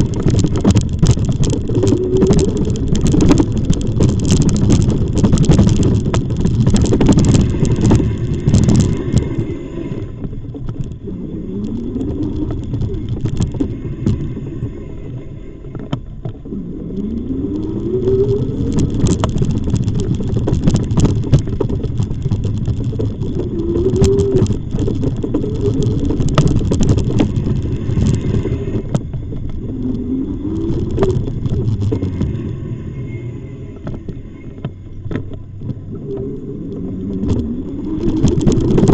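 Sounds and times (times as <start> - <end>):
bike rattling and knocking: 0.0 - 14.4, 17.0 - 32.6, 36.9 - 38.9
wind buffeting microphone: 0.0 - 38.9
short rising whine: 22.8 - 38.9.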